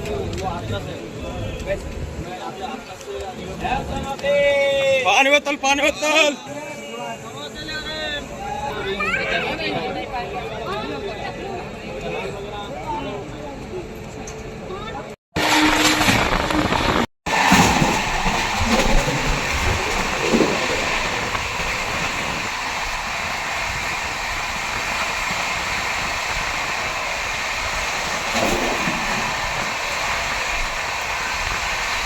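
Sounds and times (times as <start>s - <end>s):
moving train running noise: 15.4s - 32.0s.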